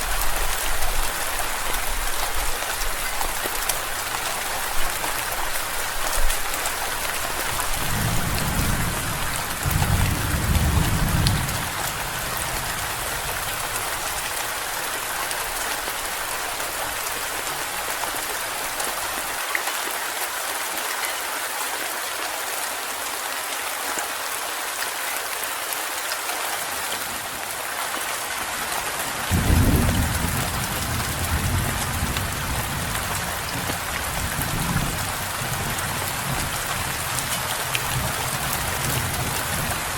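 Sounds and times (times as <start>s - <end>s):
heavy rain: 0.0s - 39.9s
thunder rumbling: 7.6s - 13.2s, 29.3s - 35.7s.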